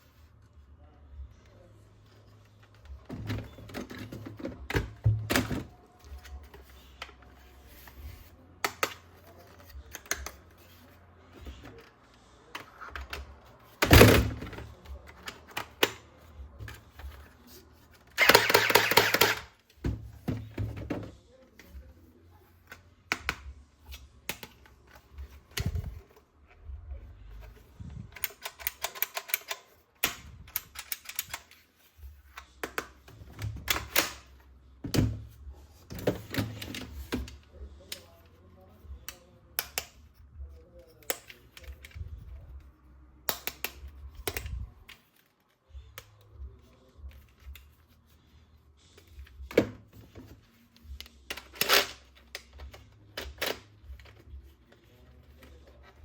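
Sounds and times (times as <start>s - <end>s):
plastic toy parts clicking and rattling: 15.1s - 19.7s, 27.4s - 32.9s, 50.5s - 56.0s.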